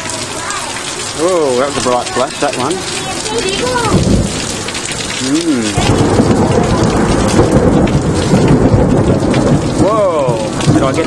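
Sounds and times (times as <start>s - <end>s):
heavy rain pouring: 0.0s - 11.0s
thunder clap rumbling: 2.8s - 11.0s.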